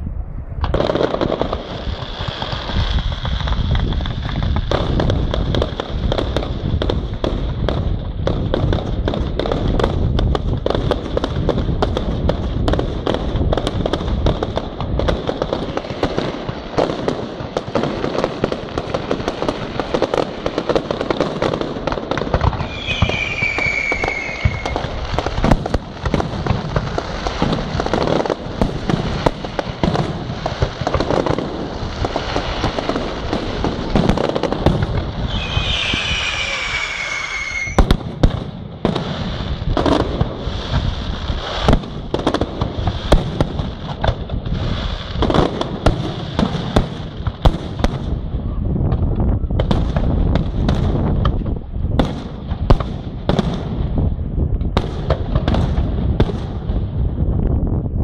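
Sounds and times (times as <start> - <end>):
fireworks bangs and crackle: 0.0 - 58.0
firework whistles falling in pitch: 22.6 - 25.0, 35.2 - 38.0.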